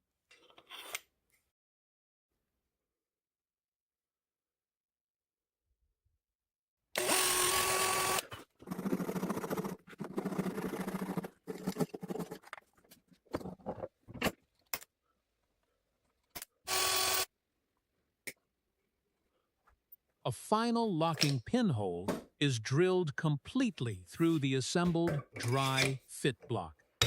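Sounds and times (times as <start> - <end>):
electric drill boring into wood: 7.0 - 9.3, 16.7 - 17.3.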